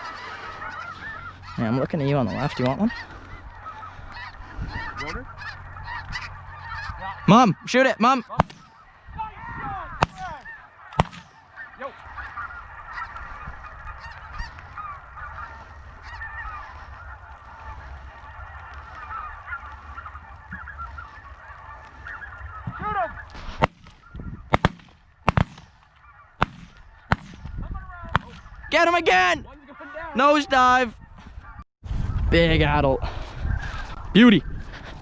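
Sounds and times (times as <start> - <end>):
geese honking: 0.0 - 31.6
wind rumble on microphone: 1.0 - 7.1, 9.0 - 10.4, 12.1 - 20.9, 21.9 - 24.6, 26.7 - 29.6, 30.6 - 35.0
shotgun shots: 8.4 - 8.8, 10.0 - 11.5, 23.6 - 25.8, 26.4 - 27.5, 28.2 - 28.5.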